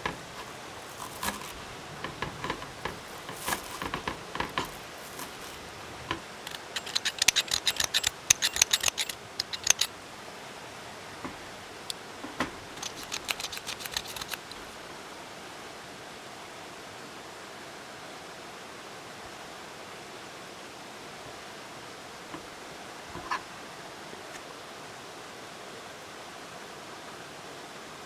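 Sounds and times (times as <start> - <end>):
scissors snipping green onions: 0.0 - 9.9, 12.8 - 14.7.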